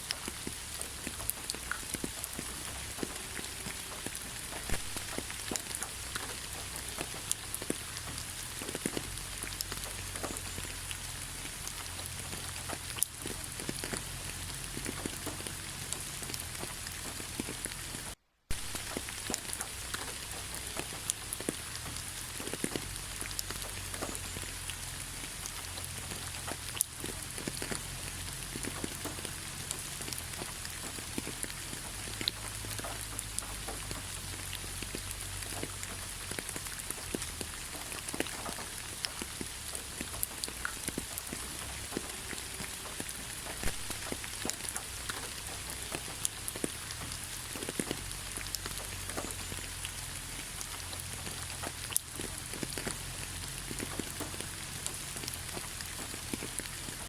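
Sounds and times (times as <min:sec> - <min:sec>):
raindrops ticking and pattering: 0:00.0 - 0:57.0
steady rain hiss: 0:00.0 - 0:57.0.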